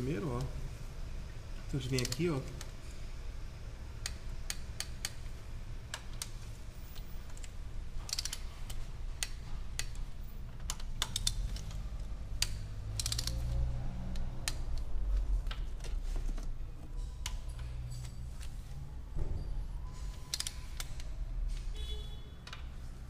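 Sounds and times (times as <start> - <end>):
low background hum: 0.0 - 23.0
torque wrench clicking: 1.8 - 2.2, 4.0 - 5.2, 8.1 - 14.9, 20.3 - 21.1.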